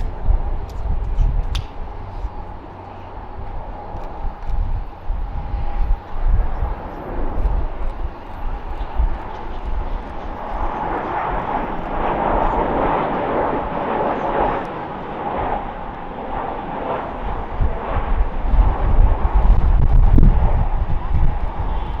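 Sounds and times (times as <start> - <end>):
jet engine rushing noise: 0.0 - 22.0
wind rumble on microphone: 0.0 - 22.0.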